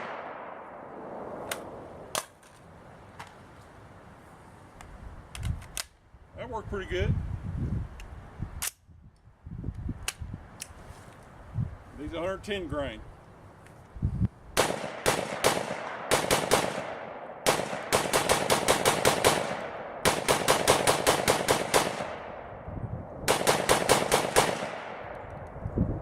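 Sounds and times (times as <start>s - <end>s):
rifle gunshots with echo: 0.0s - 1.7s, 14.6s - 25.3s.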